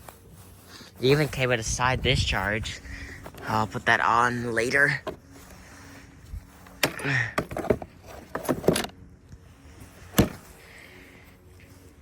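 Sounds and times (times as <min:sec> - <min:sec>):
lawnmower parts rattling: 0:06.6 - 0:09.0.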